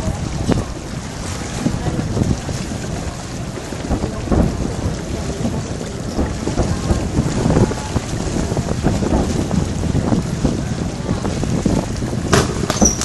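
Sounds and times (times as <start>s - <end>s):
distant fireworks booming: 3.5s - 13.0s.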